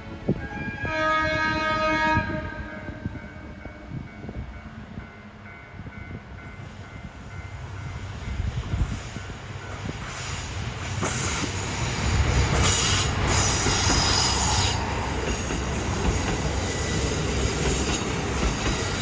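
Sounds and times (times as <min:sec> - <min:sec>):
diesel train rumbling past: 0:00.0 - 0:19.0
train horn blast: 0:00.3 - 0:04.1.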